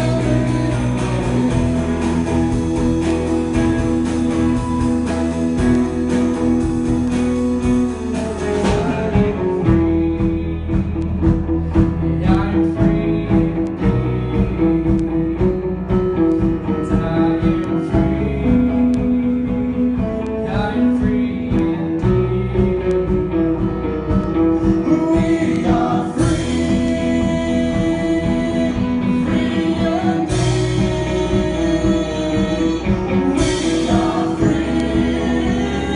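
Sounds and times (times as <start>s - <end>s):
people singing: 0.0s - 3.2s, 11.7s - 15.0s, 24.1s - 35.9s
band playing guitar and drums: 0.0s - 35.9s.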